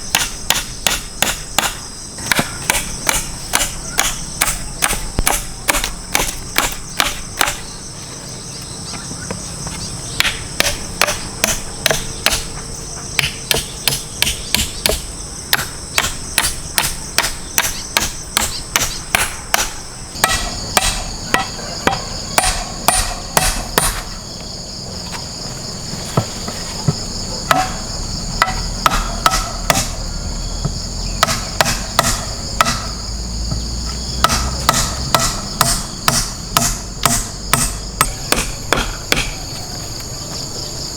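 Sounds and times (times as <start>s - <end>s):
insects chirring: 0.0s - 40.9s
hammer blows: 13.2s - 24.2s, 26.1s - 39.6s.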